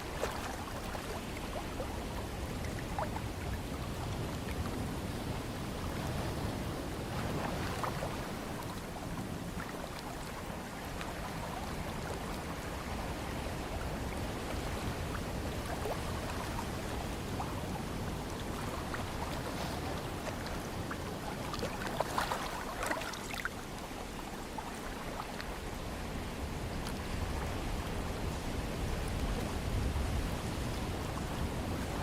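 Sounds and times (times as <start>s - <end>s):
splashes: 0.0s - 1.9s, 21.0s - 23.8s
ocean water washing: 0.0s - 32.0s.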